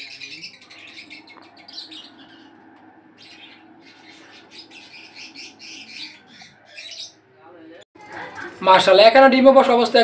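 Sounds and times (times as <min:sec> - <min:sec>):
birds chirping and twittering: 0:00.0 - 0:08.6.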